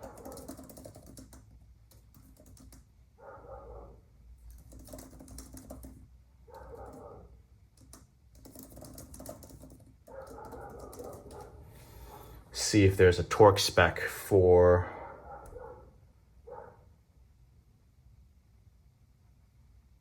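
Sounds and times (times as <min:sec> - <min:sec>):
typing on computer keyboard: 0:00.0 - 0:02.9, 0:04.4 - 0:07.1, 0:07.7 - 0:11.6.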